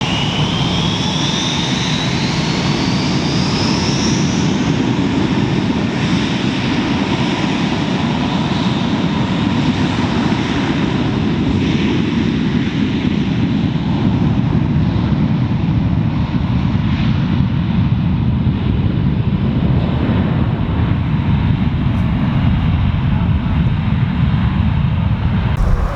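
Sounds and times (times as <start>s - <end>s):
jet engine high whine: 25.6s - 25.9s
jet engines rushing: 25.6s - 25.9s.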